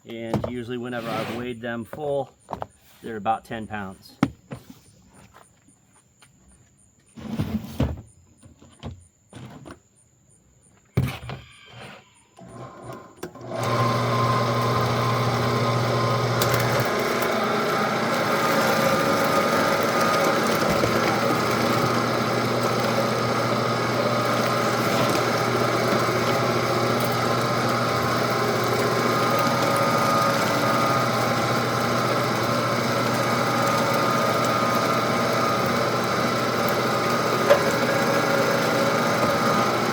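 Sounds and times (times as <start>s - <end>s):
knocks and clunks of handling: 0.0s - 0.8s, 1.8s - 2.8s, 4.1s - 5.4s
meat grinder motor humming: 13.3s - 39.9s.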